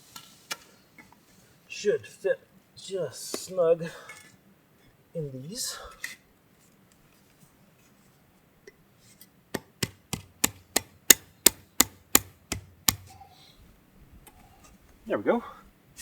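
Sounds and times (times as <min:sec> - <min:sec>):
sharp wooden knocks: 0:09.5 - 0:13.1.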